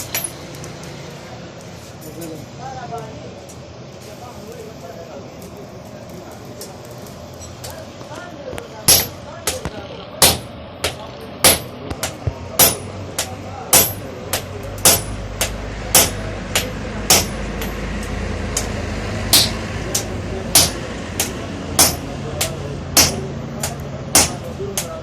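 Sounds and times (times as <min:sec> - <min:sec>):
hammer striking metal on anvil: 0:08.9 - 0:25.0.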